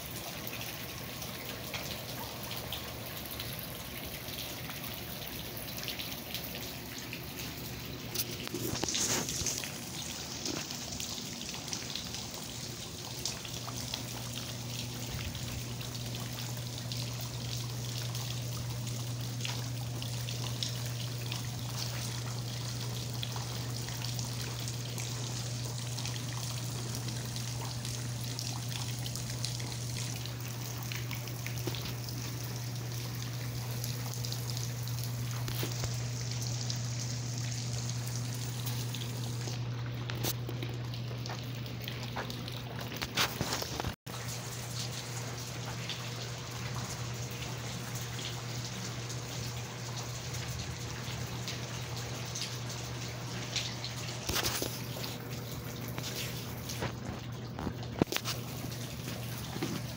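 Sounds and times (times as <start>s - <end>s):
rain pattering: 0.0s - 59.9s
water trickling and pouring: 0.0s - 59.9s.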